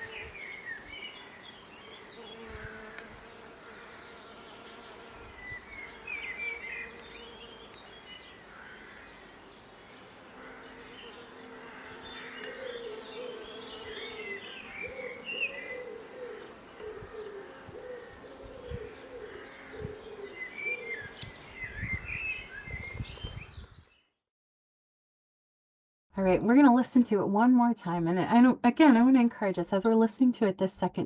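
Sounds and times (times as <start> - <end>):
small birds chirping: 0.0 - 24.2
dove cooing: 10.4 - 21.2.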